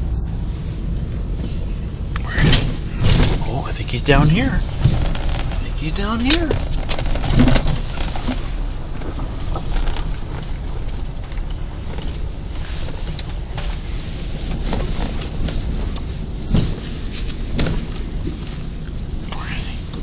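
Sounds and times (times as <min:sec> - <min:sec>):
pickup engine and road noise: 0:00.0 - 0:20.0.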